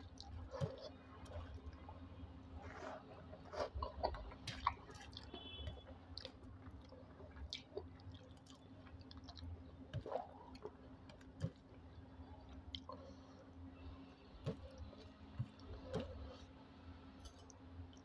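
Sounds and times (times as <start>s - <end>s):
wet chewing and lip smacks: 0.0s - 11.6s, 12.5s - 13.2s
faint low hum: 0.0s - 18.0s.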